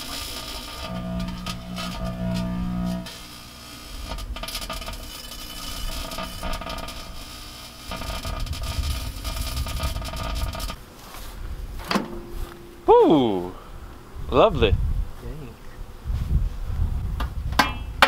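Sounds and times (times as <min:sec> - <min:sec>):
microwave oven humming: 0:00.0 - 0:10.8.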